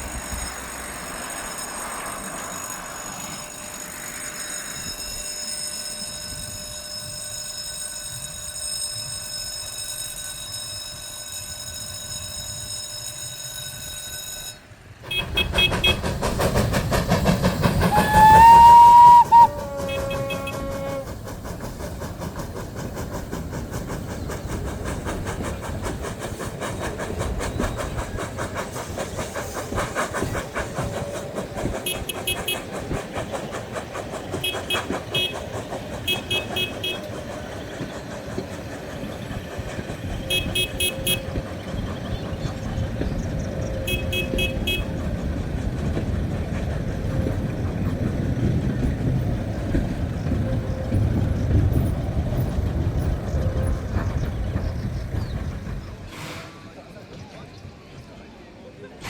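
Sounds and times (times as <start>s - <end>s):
high-pitched train toots: 0.0s - 45.2s
train rhythmic clatter: 0.0s - 59.0s.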